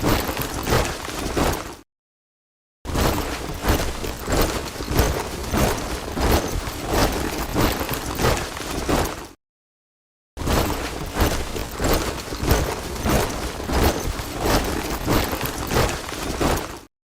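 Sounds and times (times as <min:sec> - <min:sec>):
soldiers marching in step: 0:03.0 - 0:09.4, 0:10.5 - 0:16.9.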